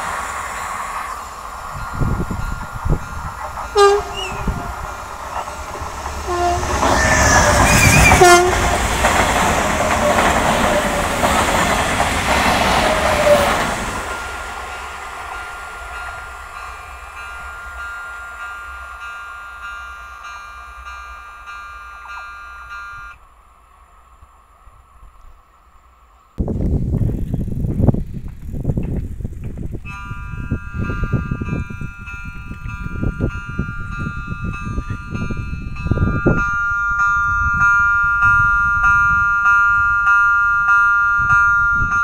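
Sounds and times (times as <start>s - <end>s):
train wheels rushing on rails: 0.0s - 22.7s
crossing warning electronic tone: 1.0s - 8.8s, 15.3s - 23.2s
train horn blasts: 3.7s - 5.4s, 6.1s - 9.0s.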